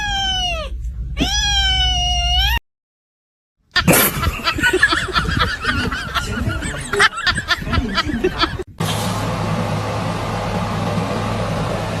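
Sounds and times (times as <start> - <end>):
cat meowing: 0.0 - 2.6.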